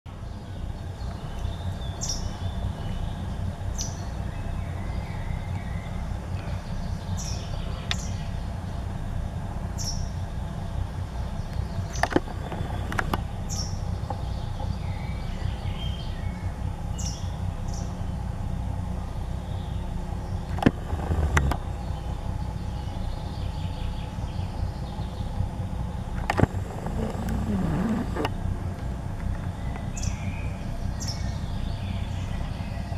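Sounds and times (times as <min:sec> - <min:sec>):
faint bird twittering: 0:00.1 - 0:32.9
songbirds chirping: 0:00.1 - 0:32.9
steady low rumble: 0:00.1 - 0:32.9
sharp clicks: 0:11.5 - 0:13.2, 0:20.5 - 0:21.6, 0:26.1 - 0:28.4.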